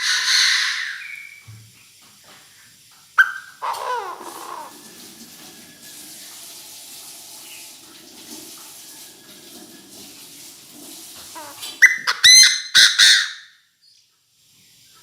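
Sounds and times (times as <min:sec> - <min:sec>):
bird harsh calls: 0:00.0 - 0:01.5, 0:03.2 - 0:04.9, 0:11.4 - 0:13.6.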